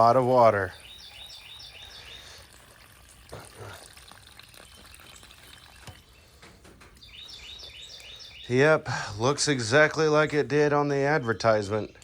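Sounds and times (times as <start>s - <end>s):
water pouring from tank: 1.9s - 6.2s.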